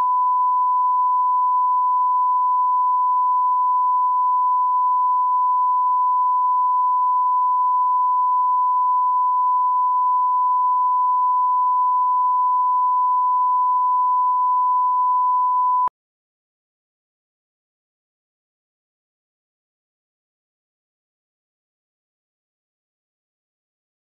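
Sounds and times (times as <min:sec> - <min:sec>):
sine-wave line-up tone: 0:00.0 - 0:15.9.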